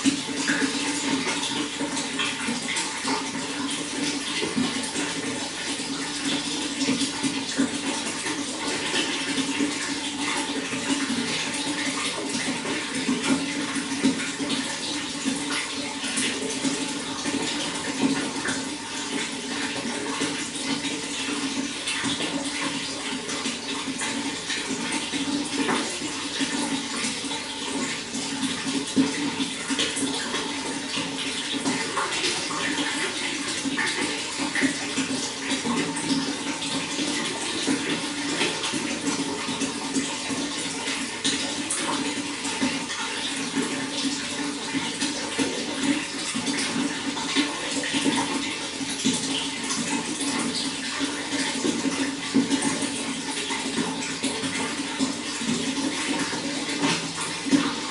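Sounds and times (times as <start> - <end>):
running water splashing: 0.0 - 57.9.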